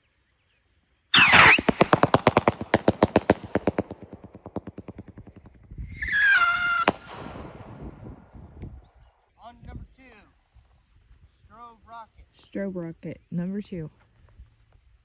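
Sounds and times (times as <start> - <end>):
rocket launch whoosh: 1.2 - 8.5
sharp crack: 1.2 - 8.8
strobe crackling pops: 1.2 - 8.8.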